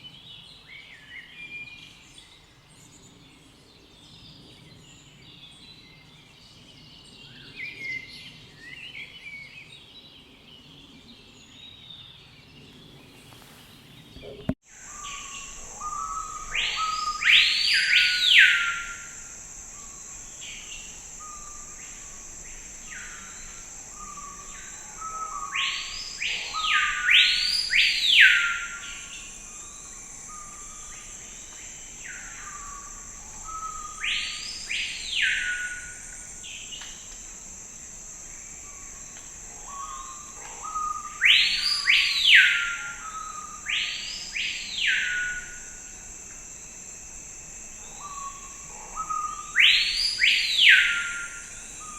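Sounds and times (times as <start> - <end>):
high-pitched hiss: 12.8 - 51.9.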